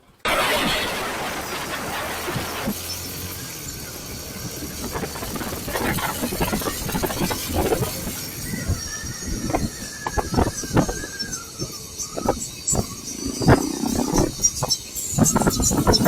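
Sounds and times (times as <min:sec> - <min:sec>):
high whine: 0:00.0 - 0:02.9
motorcycle riding in traffic: 0:00.0 - 0:11.1, 0:11.8 - 0:16.0
road and wind noise: 0:00.0 - 0:16.0.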